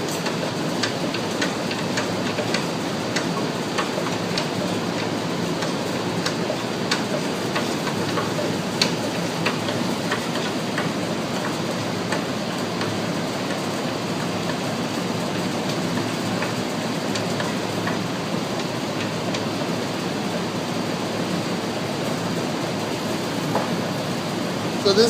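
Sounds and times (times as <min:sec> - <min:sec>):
bend-test machine running: 0:00.0 - 0:25.0.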